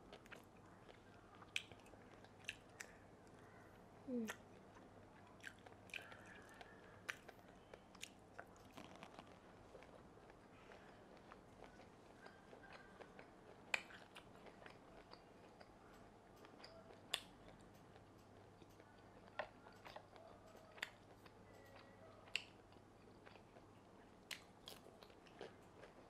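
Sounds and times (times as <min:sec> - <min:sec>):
chewing food: 0:00.0 - 0:26.0.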